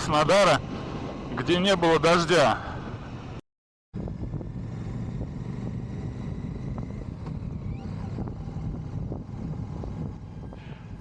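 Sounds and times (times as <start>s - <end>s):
wind rushing over microphone: 0.0s - 3.4s, 4.0s - 11.0s
motorcycle engine rumble: 4.0s - 11.0s.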